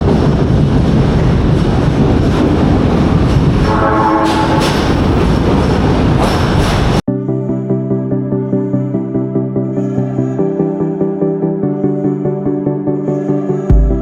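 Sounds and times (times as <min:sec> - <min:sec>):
train rumbling past: 0:00.0 - 0:07.0.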